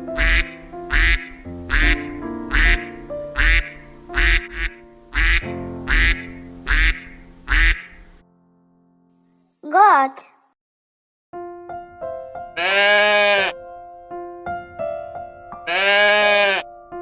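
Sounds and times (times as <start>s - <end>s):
background music: 0.0s - 9.2s
duck quacking: 0.1s - 8.1s, 12.6s - 13.5s, 15.7s - 16.6s.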